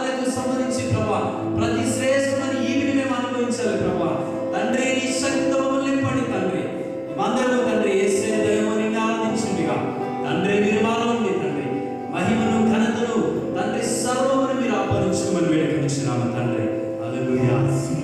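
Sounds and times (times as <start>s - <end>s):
held instrumental notes: 0.0s - 18.0s.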